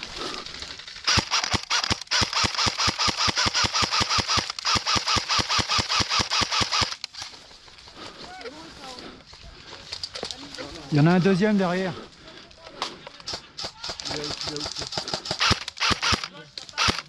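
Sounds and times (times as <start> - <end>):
airsoft gun rapid firing: 1.0 - 7.0, 13.2 - 17.0.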